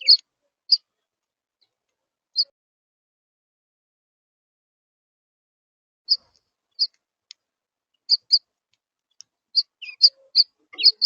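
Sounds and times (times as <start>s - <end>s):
birds chirping: 0.0s - 2.5s, 6.1s - 7.0s, 7.9s - 8.5s, 9.1s - 11.0s.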